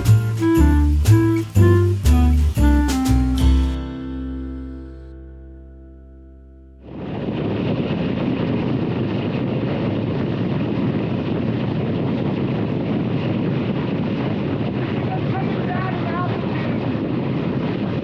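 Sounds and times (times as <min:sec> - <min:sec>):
guitar note: 0:00.0 - 0:07.0
wind rushing on microphone: 0:06.8 - 0:18.0.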